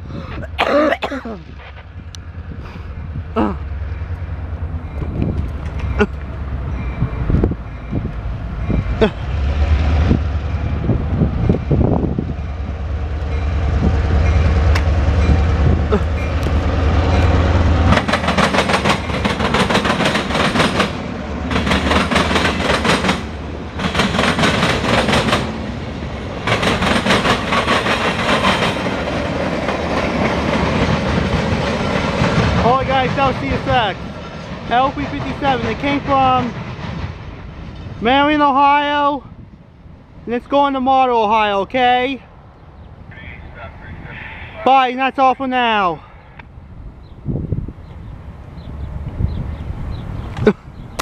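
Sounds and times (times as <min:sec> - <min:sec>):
diesel locomotive rumbling: 0:00.0 - 0:51.0
wheels clicking over rail joints: 0:05.0 - 0:07.5, 0:16.1 - 0:38.0
freight cars clattering: 0:26.4 - 0:38.1.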